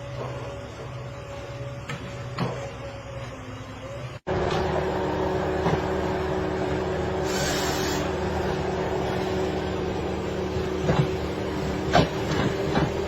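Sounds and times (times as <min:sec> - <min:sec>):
engine running steadily: 0:00.0 - 0:13.0
brief hiss: 0:07.2 - 0:08.1.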